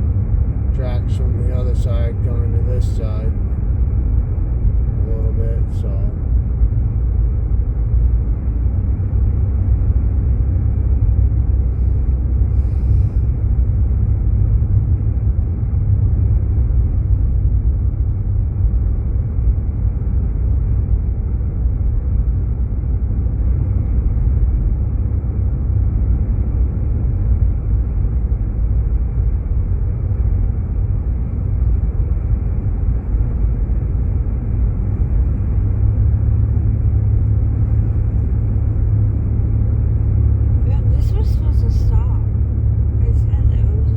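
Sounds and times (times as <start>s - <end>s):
car engine rumble: 0.0s - 43.9s.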